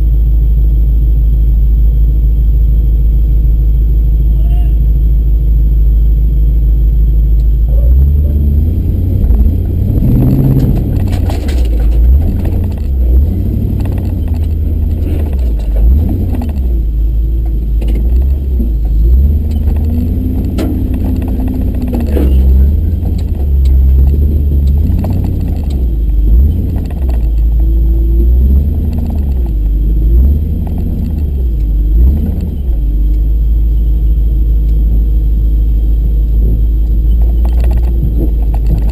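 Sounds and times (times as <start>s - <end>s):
truck engine running: 0.0s - 38.9s
clunks and rattles: 7.4s - 33.3s, 36.0s - 38.9s.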